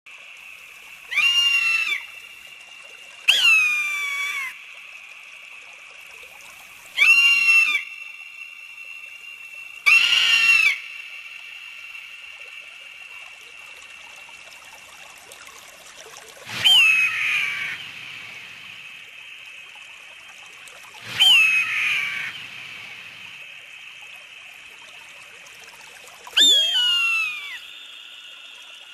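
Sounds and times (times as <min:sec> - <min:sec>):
faint background hiss: 0:00.1 - 0:28.9
bird of prey screaming: 0:01.1 - 0:02.1, 0:03.3 - 0:04.6, 0:07.0 - 0:07.9, 0:09.8 - 0:10.8, 0:16.5 - 0:17.9, 0:21.0 - 0:22.5, 0:26.4 - 0:27.7.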